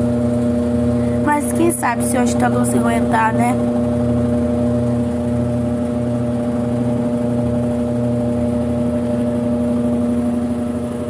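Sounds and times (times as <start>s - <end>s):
washing machine spinning: 0.0s - 11.0s.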